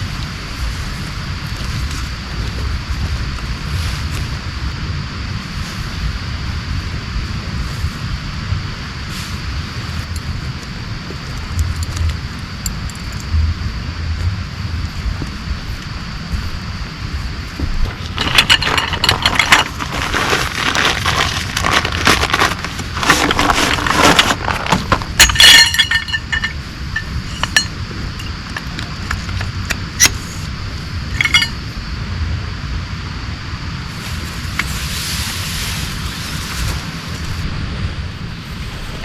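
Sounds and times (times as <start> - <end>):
gear rustling and clattering: 17.6 - 30.3, 31.1 - 31.6
ringing clinks: 25.2 - 28.3, 31.1 - 31.6.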